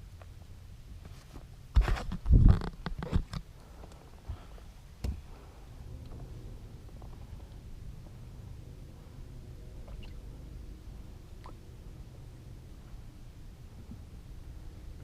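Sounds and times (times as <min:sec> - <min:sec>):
low steady rumble: 0:00.0 - 0:15.0
thumps knocks and scraping: 0:01.0 - 0:05.3.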